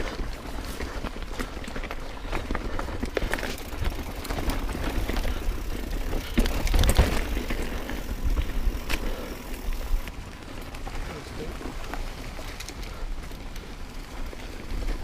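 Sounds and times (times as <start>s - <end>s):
bike rattling over bumps: 0.0s - 15.0s
tyres rolling on loose ground: 0.0s - 15.0s.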